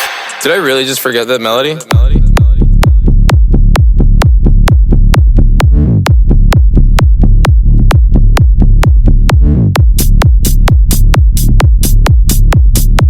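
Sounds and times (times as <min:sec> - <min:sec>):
swept effect: 0:00.0 - 0:01.4
minimal techno music: 0:01.8 - 0:13.0.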